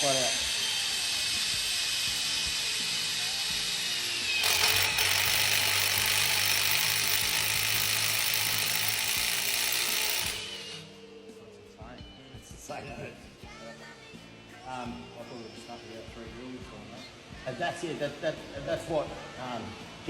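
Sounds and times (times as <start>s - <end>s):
power drill drilling into metal: 0.0s - 10.8s.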